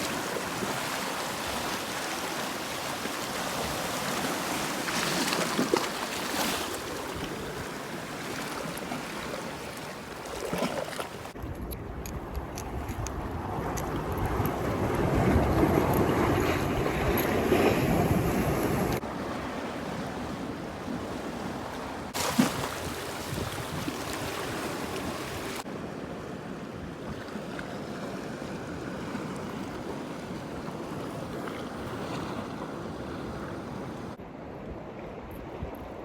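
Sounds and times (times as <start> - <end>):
wind and sea rushing wash: 0.0 - 36.0.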